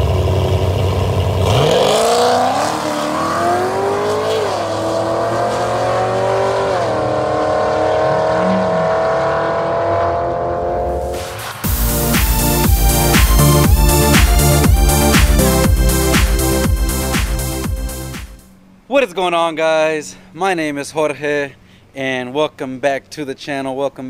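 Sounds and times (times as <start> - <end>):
car engine accelerating hard: 0.0 - 18.1.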